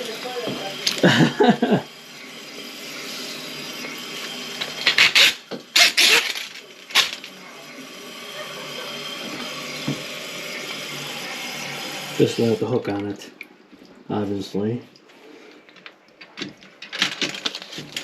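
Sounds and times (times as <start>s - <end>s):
water running hiss: 0.0s - 13.2s.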